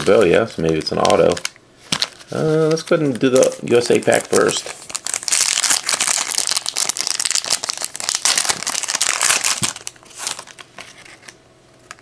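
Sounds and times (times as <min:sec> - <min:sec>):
foil wrapper tearing and crinkling: 0:00.0 - 0:11.3.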